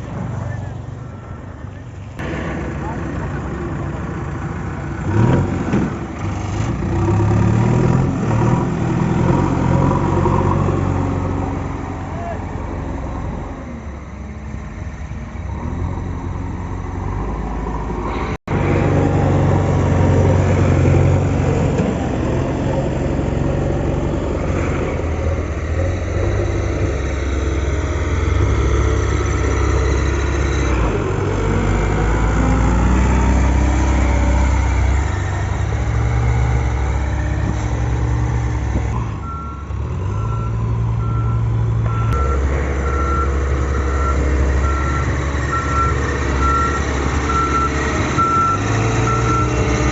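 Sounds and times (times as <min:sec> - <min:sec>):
diesel engine revving: 0:00.0 - 0:49.9
reversing alarm beeping: 0:39.2 - 0:49.6.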